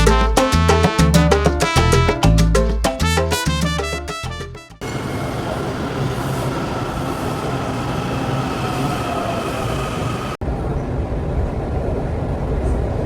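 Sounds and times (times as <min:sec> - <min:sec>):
subway train rumbling on track: 0:04.8 - 0:13.0.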